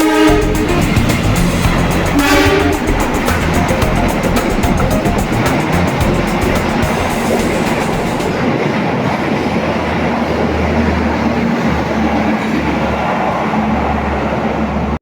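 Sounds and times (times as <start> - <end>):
electric train rail rumble: 0.0 - 15.0
low hum: 0.3 - 8.8.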